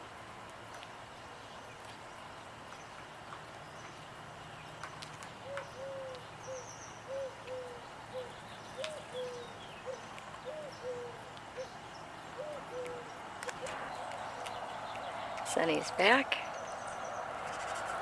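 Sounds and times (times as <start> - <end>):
songbird twittering trill: 1.3 - 18.0
bird hooting: 5.4 - 11.8, 12.4 - 14.0.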